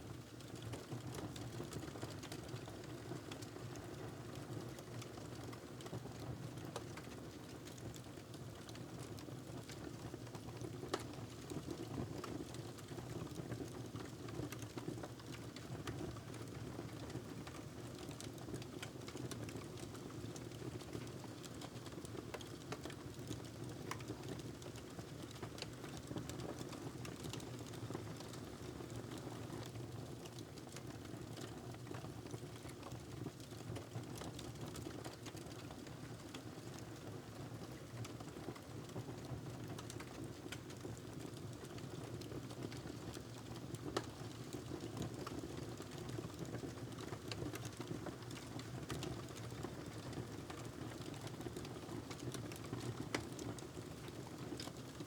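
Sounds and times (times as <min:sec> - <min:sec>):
fire crackling and popping: 0:39.7 - 0:54.8.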